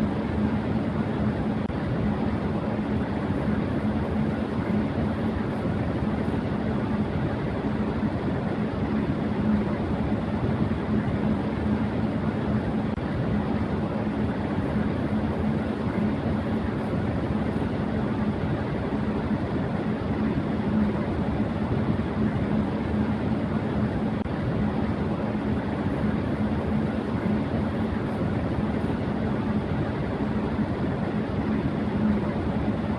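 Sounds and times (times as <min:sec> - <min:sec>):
electric fan running: 0:00.0 - 0:32.9.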